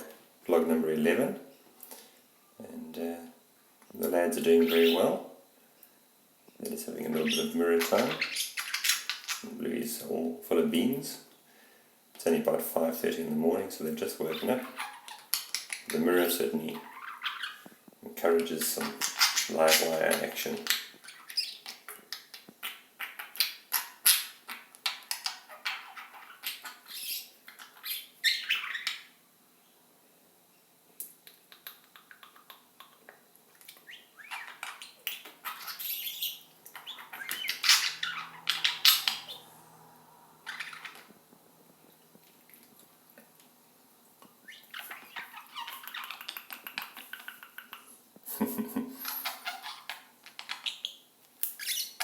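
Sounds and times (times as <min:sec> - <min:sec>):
budgerigars chattering: 0:07.1 - 0:09.5, 0:14.2 - 0:17.7, 0:18.5 - 0:21.8, 0:33.8 - 0:39.5, 0:44.5 - 0:47.9, 0:49.0 - 0:50.9.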